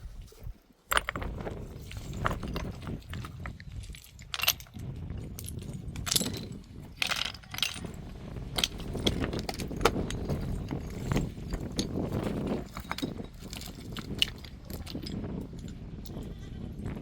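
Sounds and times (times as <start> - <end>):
metallic clinks and scrapes: 0.9 - 16.4.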